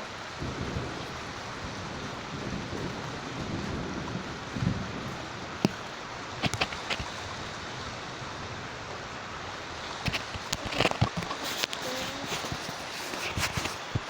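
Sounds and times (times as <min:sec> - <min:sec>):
heavy rain hissing: 0:00.0 - 0:14.0
thunder rumbling: 0:00.0 - 0:14.0.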